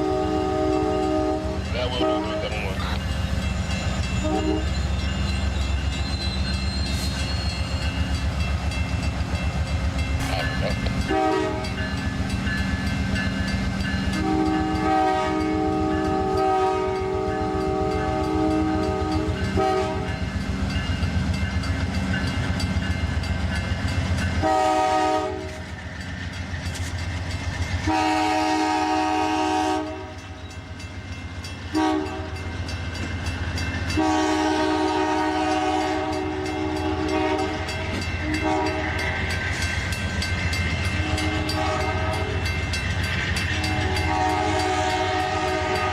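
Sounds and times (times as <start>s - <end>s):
locomotive air horn blasts: 0.0s - 2.4s, 4.2s - 4.7s, 11.1s - 11.7s, 14.2s - 20.2s, 24.4s - 25.6s, 27.8s - 30.1s, 31.7s - 32.3s, 34.0s - 39.1s, 41.0s - 42.4s, 43.6s - 45.9s
locomotive engine rumble: 0.0s - 45.7s
rail wheels clicking: 0.0s - 45.9s.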